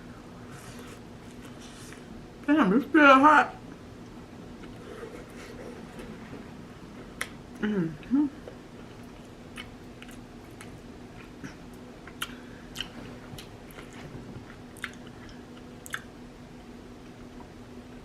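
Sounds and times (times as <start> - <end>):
faint steady hum: 0.0 - 18.0
person chewing with mouth clicks: 9.0 - 16.1.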